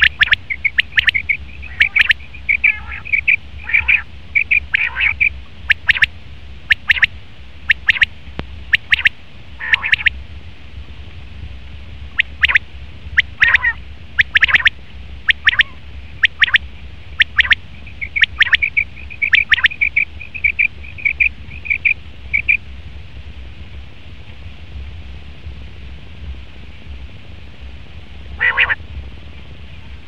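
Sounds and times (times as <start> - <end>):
quail calling: 0.0 - 6.1, 6.7 - 7.1, 7.7 - 8.1, 8.8 - 10.1, 12.2 - 12.6, 13.2 - 22.6, 28.4 - 28.8.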